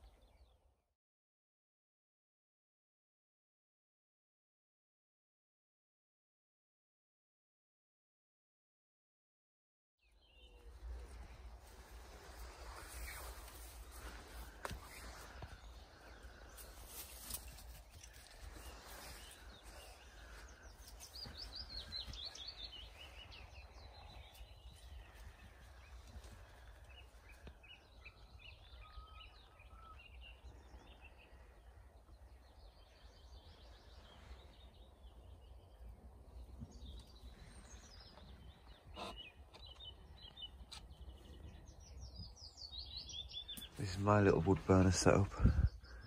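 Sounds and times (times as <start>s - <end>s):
birds chirping faintly: 10.0s - 46.0s.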